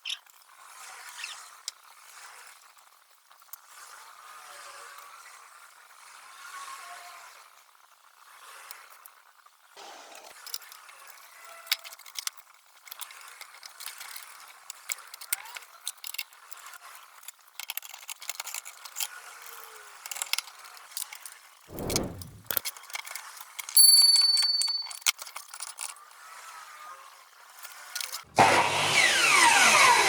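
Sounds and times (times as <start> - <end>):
metal tools clicking and rattling: 23.8 - 25.1.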